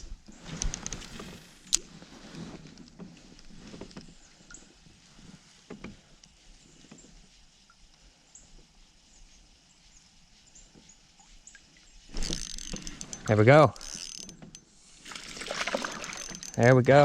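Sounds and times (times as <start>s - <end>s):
gear clicking and knocking: 12.1s - 14.6s, 15.4s - 17.0s
gear rattling: 12.1s - 17.0s.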